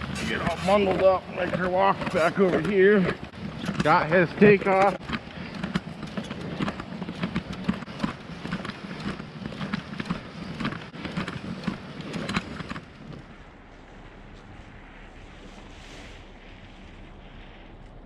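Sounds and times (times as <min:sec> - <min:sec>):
faint wind noise: 0:00.0 - 0:18.0
footsteps walking: 0:09.3 - 0:18.0.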